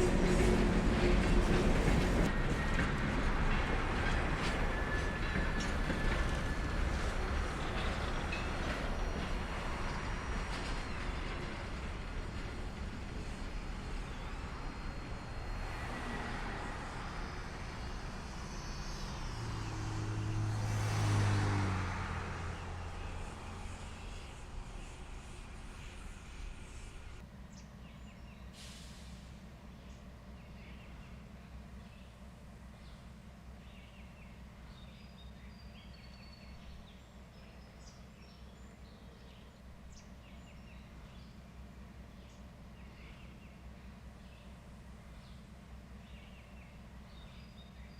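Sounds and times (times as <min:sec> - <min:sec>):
vehicle passing by: 0:15.3 - 0:27.2.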